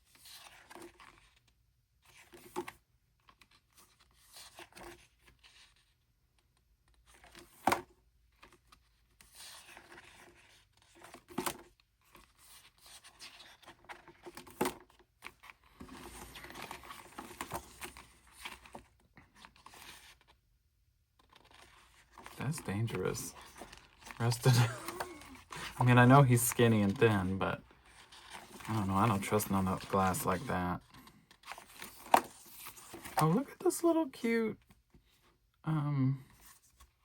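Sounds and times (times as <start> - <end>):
paper pages rustling: 8.4 - 20.4, 21.2 - 33.5.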